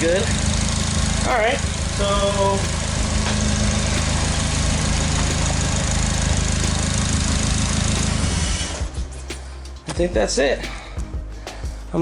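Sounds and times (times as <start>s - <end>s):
engine idling: 0.0s - 9.7s.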